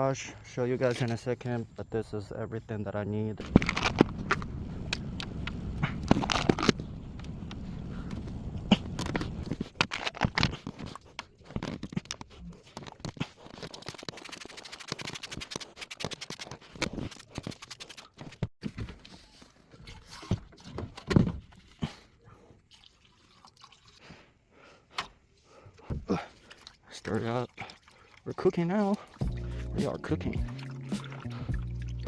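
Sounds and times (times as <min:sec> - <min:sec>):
knocks and scrapes of equipment: 0:08.8 - 0:13.4
dripping liquid: 0:22.7 - 0:24.0, 0:26.2 - 0:32.0.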